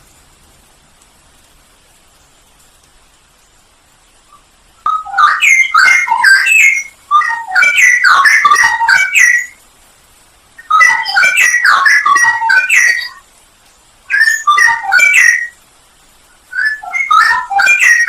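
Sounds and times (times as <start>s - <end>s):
bird singing warbling phrases: 4.3s - 9.6s, 10.6s - 13.2s, 14.1s - 15.6s, 16.4s - 18.0s.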